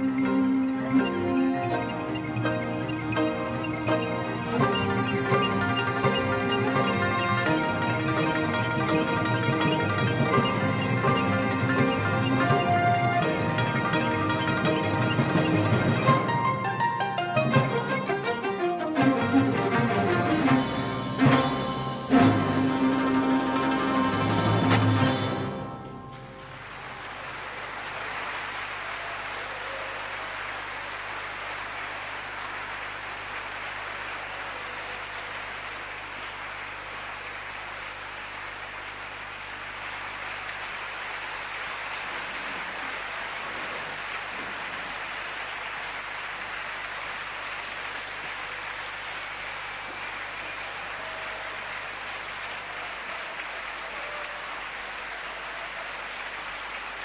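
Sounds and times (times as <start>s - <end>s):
music: 0.0s - 27.2s
large audience applauding: 0.0s - 57.0s.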